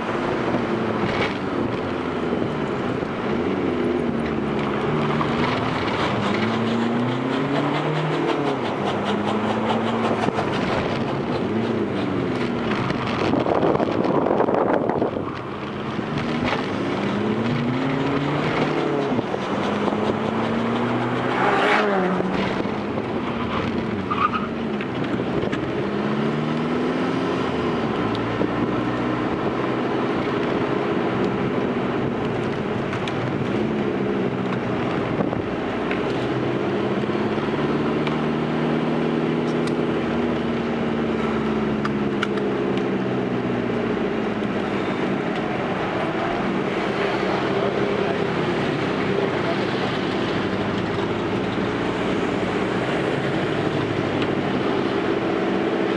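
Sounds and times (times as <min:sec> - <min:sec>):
diesel engine revving: 0:00.0 - 0:55.9.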